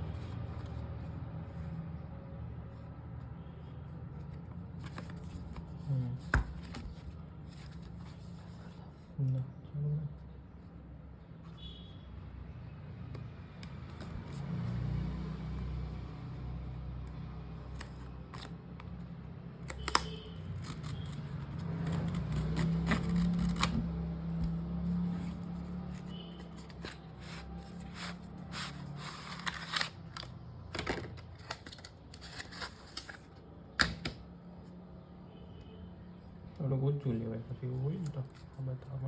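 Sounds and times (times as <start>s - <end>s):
packaging clicks and rustles: 25.8s - 34.1s.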